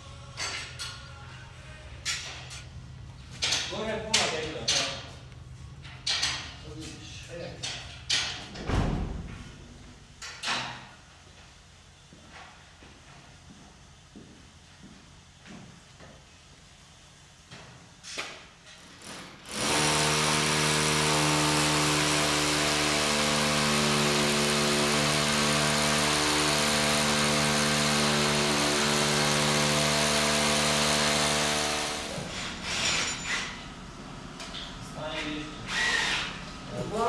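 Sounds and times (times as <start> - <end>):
electric power tool running: 19.0 - 32.6.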